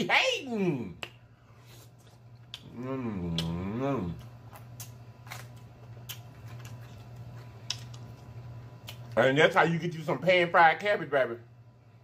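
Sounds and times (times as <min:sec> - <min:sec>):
steady low hum: 0:00.0 - 0:12.0
person chewing food: 0:01.0 - 0:09.2
person humming mmm: 0:02.5 - 0:04.3.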